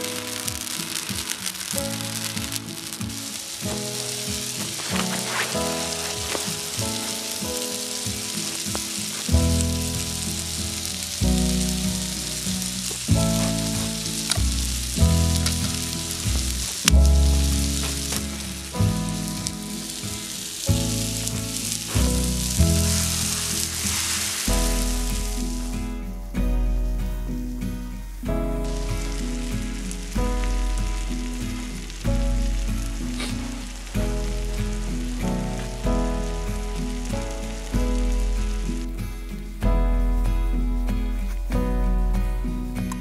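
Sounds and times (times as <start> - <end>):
vegetables sizzling in a pan: 0.0 - 39.7
slow chord music: 0.0 - 43.0
deep bass: 9.3 - 43.0.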